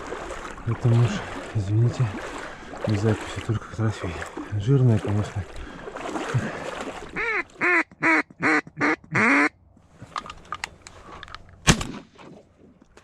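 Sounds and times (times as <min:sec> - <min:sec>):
duck quacking: 0:07.2 - 0:09.6
sharp crack: 0:11.6 - 0:12.4.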